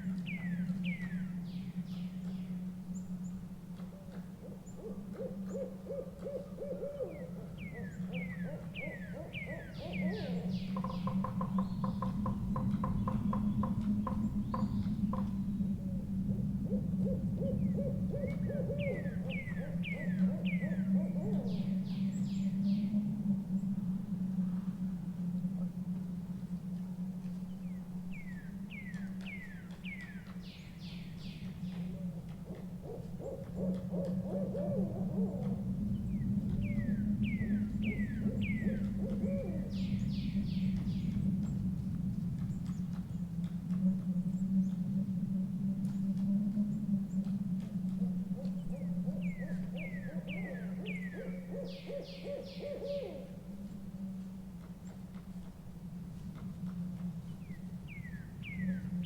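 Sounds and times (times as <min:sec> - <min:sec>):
owl hooting: 0:03.8 - 0:23.6, 0:31.4 - 0:41.2, 0:43.7 - 0:54.7
owl quavering calls: 0:04.2 - 0:15.3, 0:48.0 - 0:53.6.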